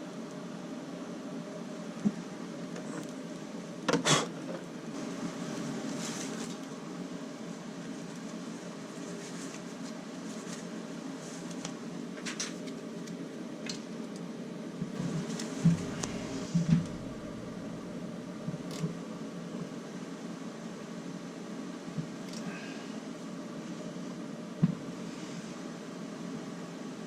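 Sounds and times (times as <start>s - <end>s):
steady background hum: 0.0s - 27.0s
low knocks of engine parts: 15.6s - 17.8s.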